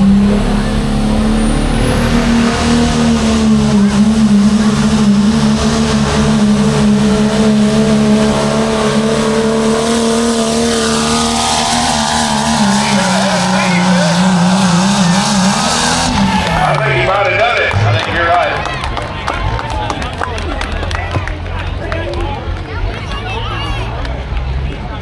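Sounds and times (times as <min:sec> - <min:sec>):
high engine whistle: 0:00.0 - 0:18.9
truck engine under heavy load: 0:00.0 - 0:25.0.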